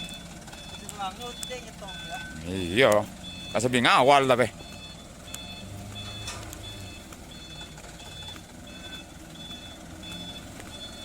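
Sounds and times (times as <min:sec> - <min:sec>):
diesel engine running: 0:00.0 - 0:11.0
truck reversing alarm beeping: 0:00.0 - 0:11.0.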